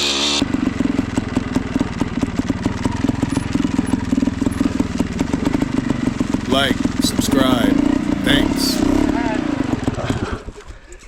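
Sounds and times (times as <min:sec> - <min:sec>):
motorcycle engine putter: 0:02.2 - 0:05.8.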